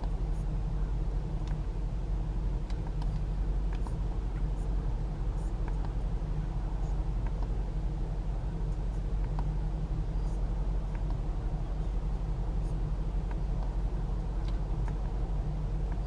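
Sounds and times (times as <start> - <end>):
car engine idling: 0.0 - 16.0
light clicks: 2.6 - 4.5, 5.4 - 6.1, 7.2 - 7.6, 8.7 - 9.6, 10.2 - 11.3, 14.4 - 15.1.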